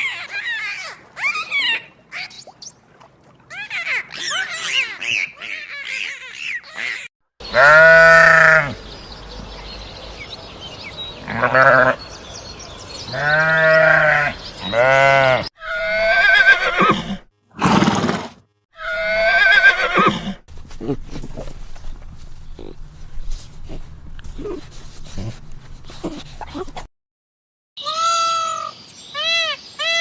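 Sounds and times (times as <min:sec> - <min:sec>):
farm animal bleating: 0:07.4 - 0:08.8, 0:11.2 - 0:12.1, 0:13.1 - 0:17.2
horse whinnying: 0:13.1 - 0:20.4.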